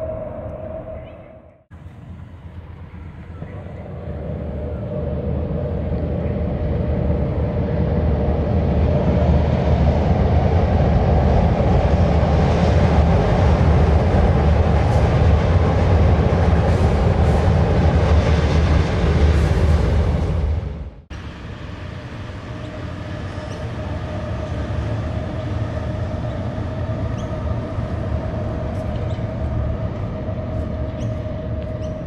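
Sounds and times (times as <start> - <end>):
train rumbling over steel bridge: 0.0 - 32.0.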